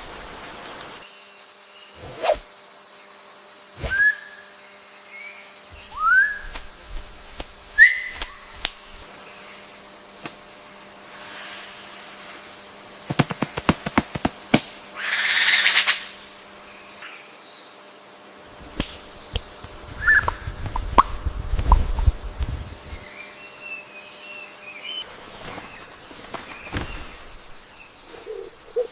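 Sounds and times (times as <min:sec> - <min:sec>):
bird rising whistles: 0:03.8 - 0:04.4, 0:05.8 - 0:06.5, 0:07.8 - 0:08.4, 0:20.0 - 0:20.4.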